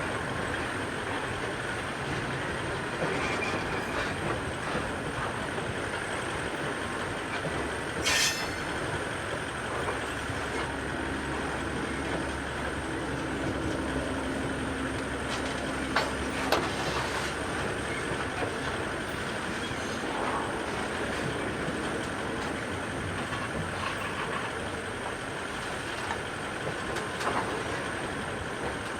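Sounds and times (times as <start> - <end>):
steel wheels rumbling on rail: 0.0 - 28.9
wheel screech: 8.0 - 8.8.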